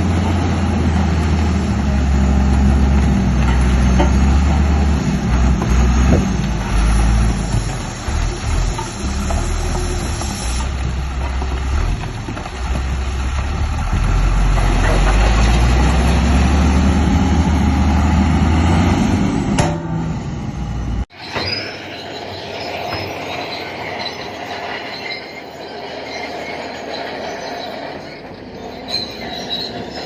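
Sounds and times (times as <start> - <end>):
bulldozer diesel engine rumbling: 0.0 - 30.0
high squeaks: 1.9 - 11.9, 21.1 - 30.0.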